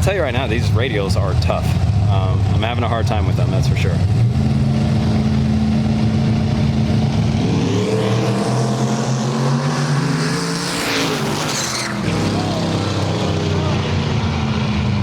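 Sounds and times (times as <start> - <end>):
race car engine accelerating: 4.0 - 15.0.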